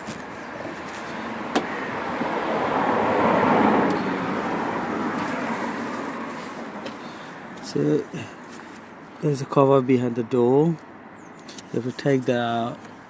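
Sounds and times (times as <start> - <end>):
car passing: 0.0 - 9.0.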